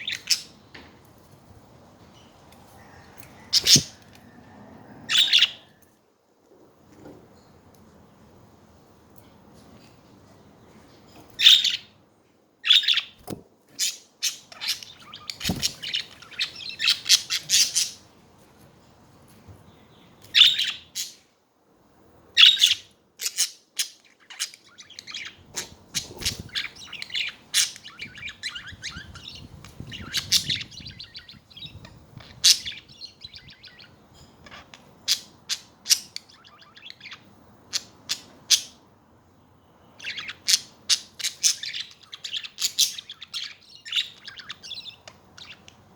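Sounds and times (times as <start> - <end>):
budgerigars chirping: 3.5 - 4.0, 5.1 - 5.7, 11.4 - 11.9, 12.6 - 13.2, 13.8 - 18.0, 20.3 - 21.2, 22.4 - 38.8, 40.0 - 45.7.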